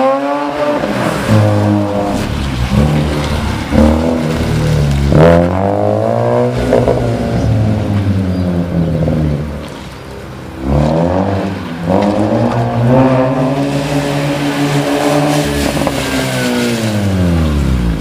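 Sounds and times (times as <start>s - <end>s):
rotary engine revving: 0.0s - 10.0s.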